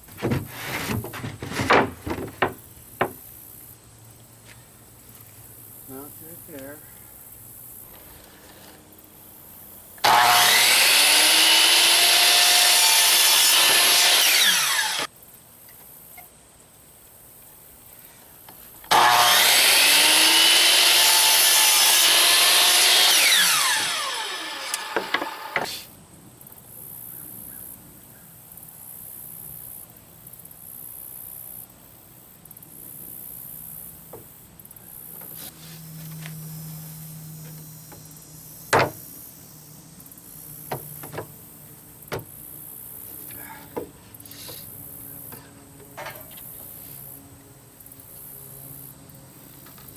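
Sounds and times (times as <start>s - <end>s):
power saw cutting plywood: 0.0s - 3.2s, 10.0s - 15.1s, 18.9s - 25.9s
saw clattering: 0.0s - 3.2s, 20.5s - 25.7s.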